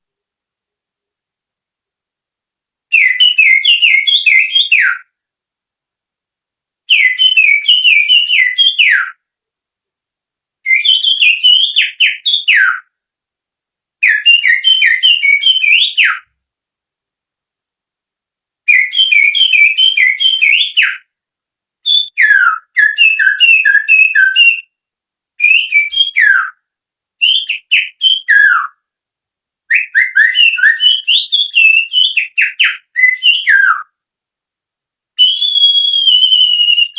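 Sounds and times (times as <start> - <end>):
finger whistling birdsong: 2.9 - 5.2, 6.8 - 9.3, 10.6 - 13.0, 14.0 - 16.4, 18.7 - 21.1, 21.8 - 24.8, 25.4 - 28.9, 29.7 - 34.0, 35.2 - 36.9.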